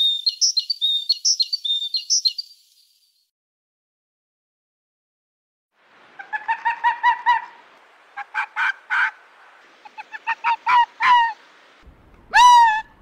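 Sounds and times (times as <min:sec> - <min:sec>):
bird calling: 0:00.0 - 0:02.8, 0:06.1 - 0:11.5.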